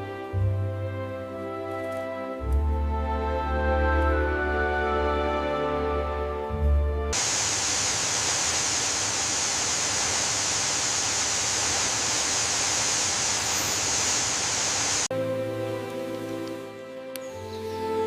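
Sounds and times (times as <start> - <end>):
steady rushing hiss: 7.2 - 15.1.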